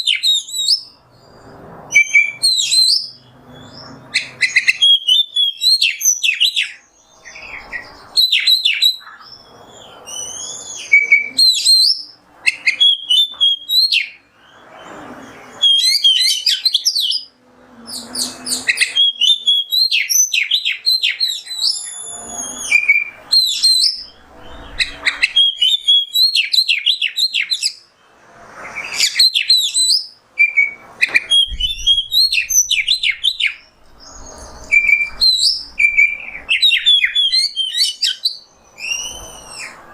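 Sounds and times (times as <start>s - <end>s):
songbird singing loudly: 0.0s - 28.0s, 28.6s - 39.9s.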